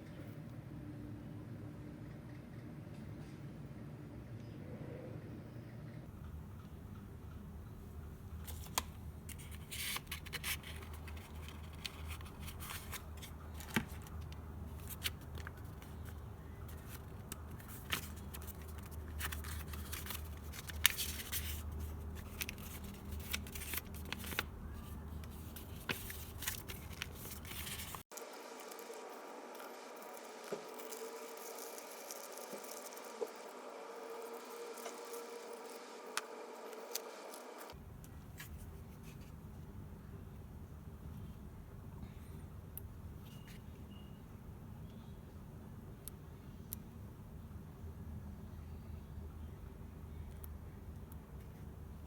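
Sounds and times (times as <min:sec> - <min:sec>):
scraping and scratching with clicks: 0:08.5 - 0:28.9.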